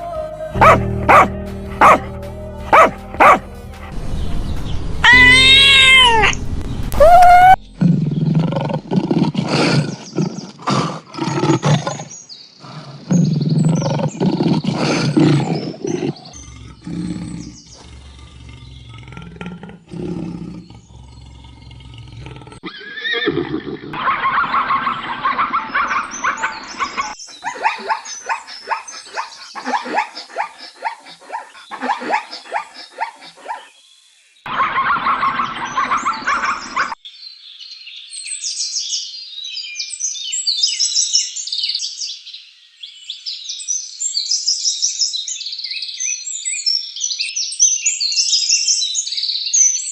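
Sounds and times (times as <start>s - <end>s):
deep roar-like animal calls: 12.7s - 22.7s.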